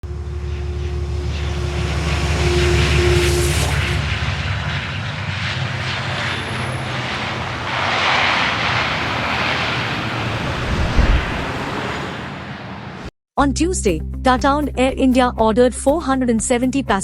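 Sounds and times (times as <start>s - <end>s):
jet engines rumbling: 0.1s - 13.1s
short thump: 10.7s - 11.5s.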